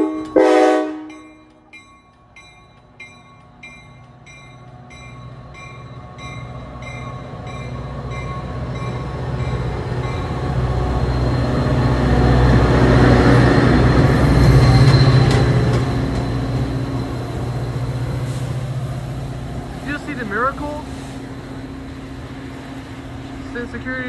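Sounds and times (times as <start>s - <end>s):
train bell ringing: 0.0s - 18.5s
locomotive rumble: 0.0s - 24.0s.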